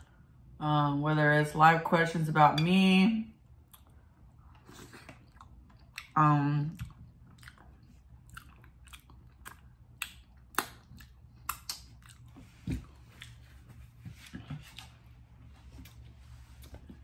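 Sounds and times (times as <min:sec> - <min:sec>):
chewing: 0:03.6 - 0:15.1
wet lip smacks and mouth clicks: 0:06.8 - 0:12.4.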